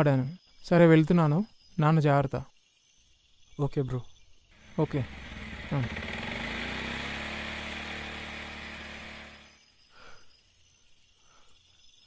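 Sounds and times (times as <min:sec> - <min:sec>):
small motorbike engine pulling away: 0:04.6 - 0:09.6.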